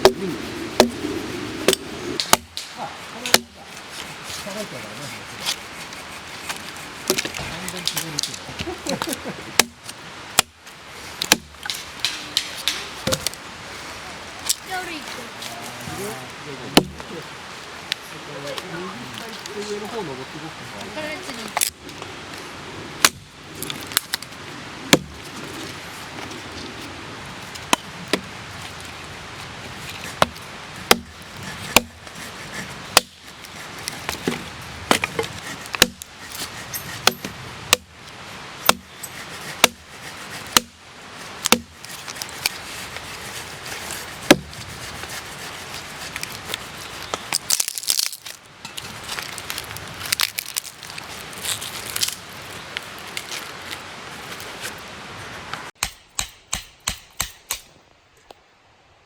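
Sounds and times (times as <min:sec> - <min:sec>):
axe chopping firewood: 0:00.0 - 0:04.4, 0:06.4 - 0:13.4, 0:16.8 - 0:17.1, 0:23.0 - 0:24.2, 0:24.9 - 0:25.2, 0:27.6 - 0:28.3, 0:29.9 - 0:38.0, 0:38.6 - 0:45.4, 0:55.8 - 0:57.7.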